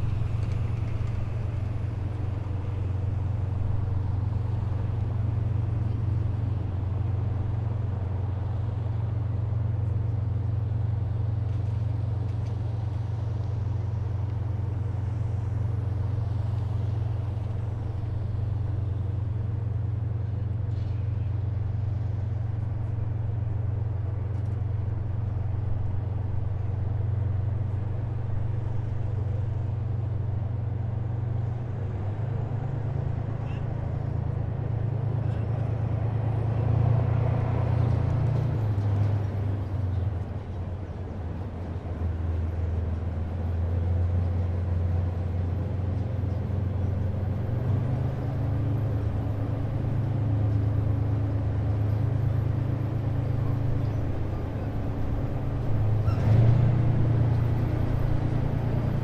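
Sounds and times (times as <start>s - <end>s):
heavy vehicle engines droning: 0.0s - 59.0s.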